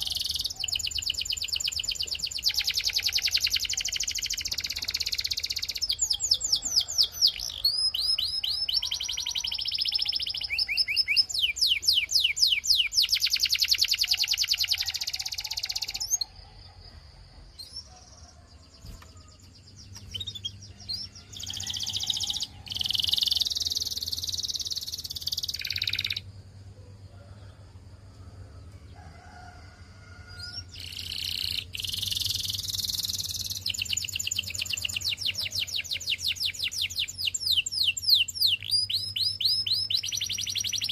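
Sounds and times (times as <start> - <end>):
canary singing trills: 0.0 - 16.8, 17.5 - 26.4, 30.4 - 40.9
faint low hum: 14.8 - 40.9.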